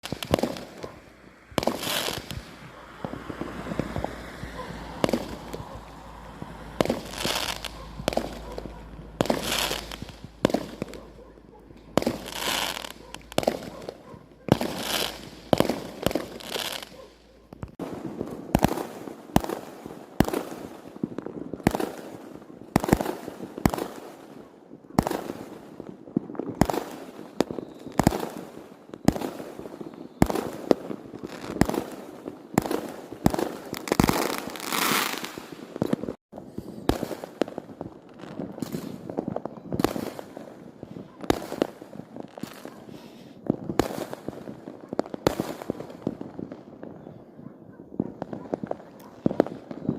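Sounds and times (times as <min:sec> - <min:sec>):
firework crackle: 0:00.0 - 0:24.3, 0:25.0 - 0:46.9
fireworks bangs: 0:00.0 - 0:49.9.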